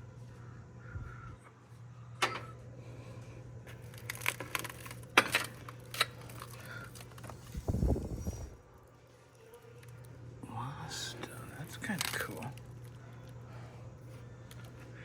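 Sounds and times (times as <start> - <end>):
steady low hum: 0.0 - 15.0
small hard objects clicking: 11.7 - 13.4.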